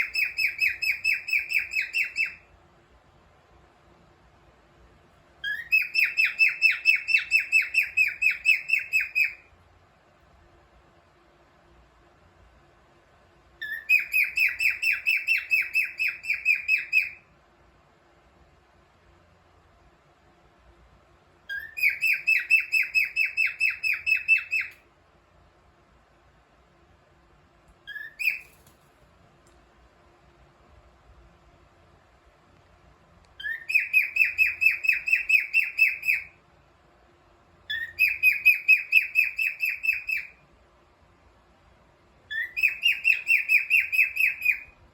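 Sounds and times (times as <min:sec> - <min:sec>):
cockatiel chirping: 0:00.0 - 0:02.5, 0:05.4 - 0:09.5, 0:13.6 - 0:17.2, 0:21.5 - 0:24.8, 0:27.8 - 0:28.7, 0:33.4 - 0:36.4, 0:37.7 - 0:40.4, 0:42.3 - 0:44.8.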